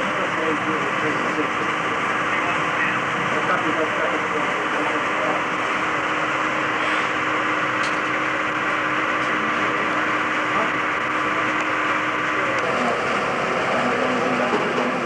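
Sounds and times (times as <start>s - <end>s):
faint voices: 0.0s - 6.2s, 8.5s - 15.0s.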